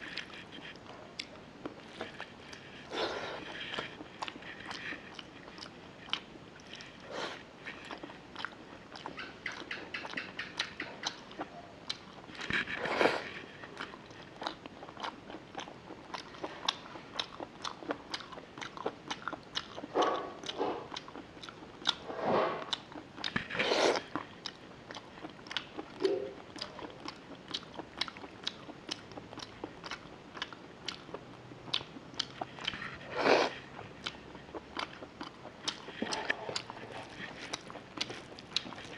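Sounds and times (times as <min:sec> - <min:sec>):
wet chewing and smacking: 0:00.0 - 0:22.0, 0:22.6 - 0:38.9.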